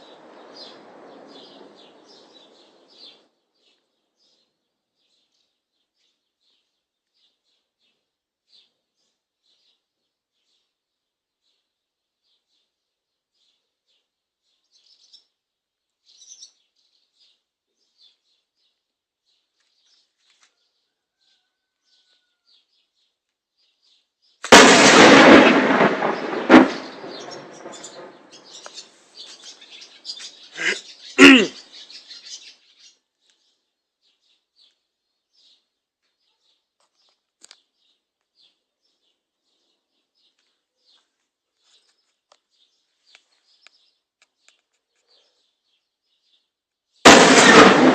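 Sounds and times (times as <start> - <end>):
birds chirping faintly: 0.0 - 24.5, 26.0 - 47.1
artillery shell explosions: 24.4 - 28.6, 47.0 - 47.9.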